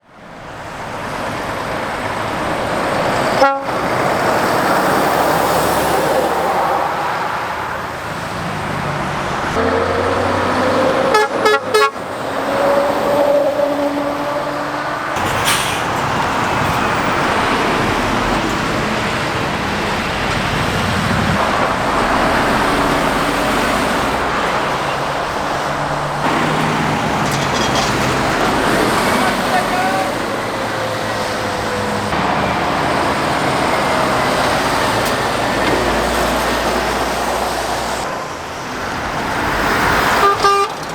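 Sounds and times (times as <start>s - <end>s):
traffic passing on road: 0.0s - 40.9s
horn tooting: 3.3s - 4.3s, 9.5s - 15.5s, 40.0s - 40.9s.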